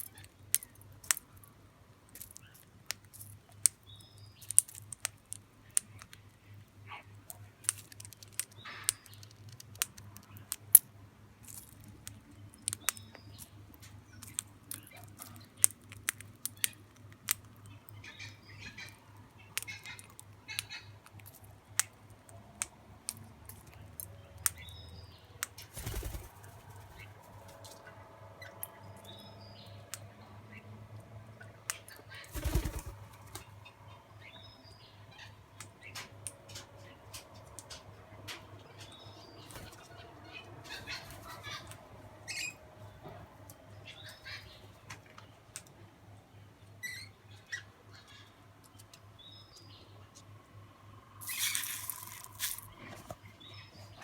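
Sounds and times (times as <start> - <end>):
sharp clicks and taps of feeding birds: 0.0 - 1.5, 2.1 - 6.4, 7.2 - 24.8, 25.4 - 27.9, 29.9 - 30.1, 30.9 - 33.5, 35.6 - 39.9, 48.6 - 49.0, 51.2 - 53.2
soft bird chirps: 23.6 - 30.6, 51.2 - 54.0.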